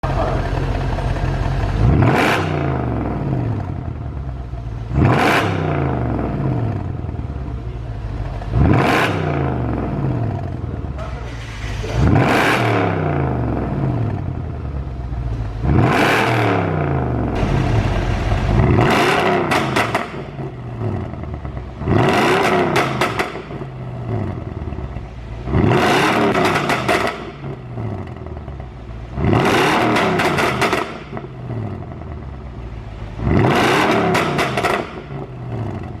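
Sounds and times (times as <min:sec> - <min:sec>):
car engine revving: 0:00.0 - 0:36.0
exhaust pops and crackles: 0:17.3 - 0:21.4, 0:22.2 - 0:23.7, 0:26.2 - 0:28.2, 0:29.8 - 0:31.3, 0:33.8 - 0:36.0.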